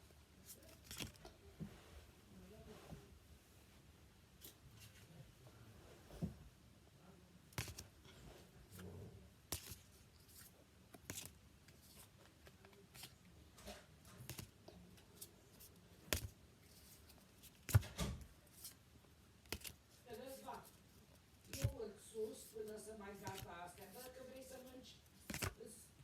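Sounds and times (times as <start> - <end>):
trading cards flipping: 0.5 - 1.3, 7.6 - 7.9, 9.5 - 18.8, 19.4 - 25.6.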